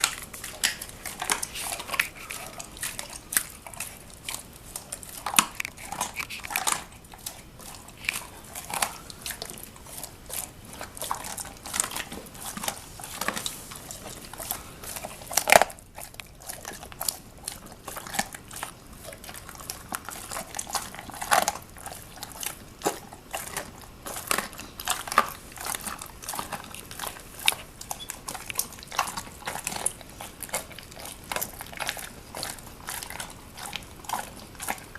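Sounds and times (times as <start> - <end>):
bone cracking crunches: 0.0 - 9.1
dog chewing bone: 0.0 - 34.9.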